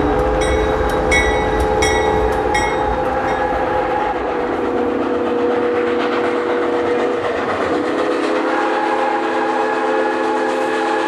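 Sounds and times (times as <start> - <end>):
crossing bell ringing: 0.0 - 3.8
multi-note train whistle: 0.0 - 11.0
rail running noise: 0.0 - 11.0.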